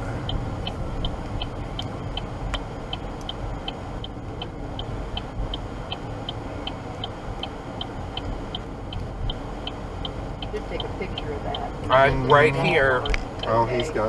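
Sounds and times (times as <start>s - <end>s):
car rumbling on road: 0.0s - 14.0s
hazard-light flasher ticking: 0.1s - 12.0s, 13.0s - 14.0s.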